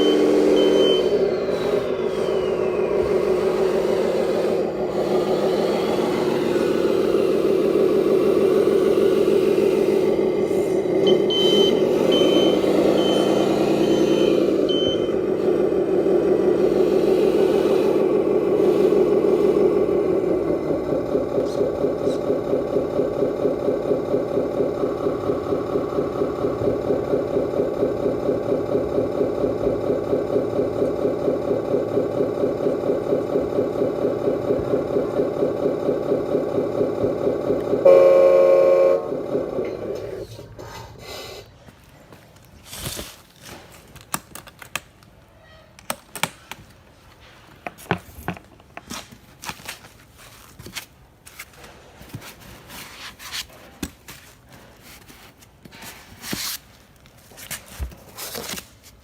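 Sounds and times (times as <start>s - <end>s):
high reversing beep: 0.0s - 3.6s, 10.9s - 15.2s
simulated diesel truck engine: 0.0s - 59.0s.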